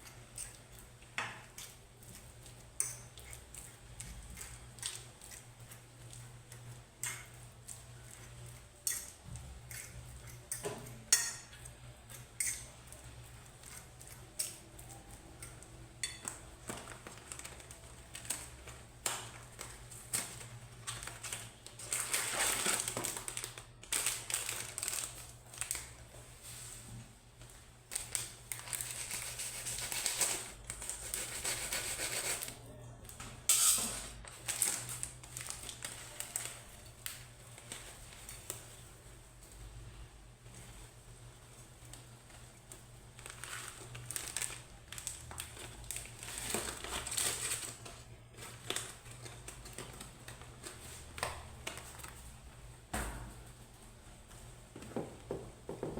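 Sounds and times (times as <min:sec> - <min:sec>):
dishes and cutlery clattering: 0:33.5 - 0:34.2.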